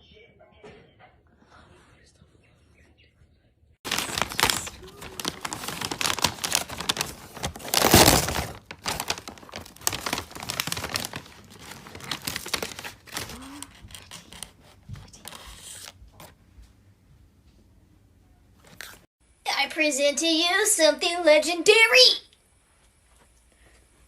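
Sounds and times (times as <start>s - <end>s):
crinkling and crumpling: 3.8s - 16.4s.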